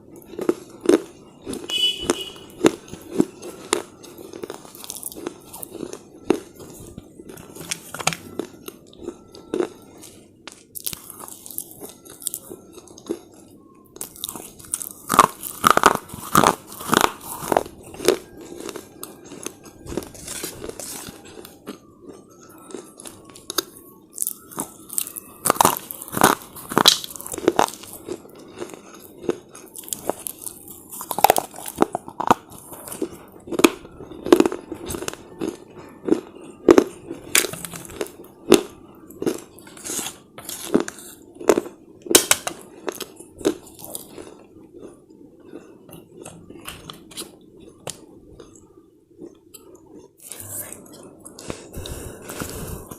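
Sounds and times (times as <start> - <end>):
person crunching brittle chips: 0.0 - 52.9
quiet chewing: 0.1 - 52.9.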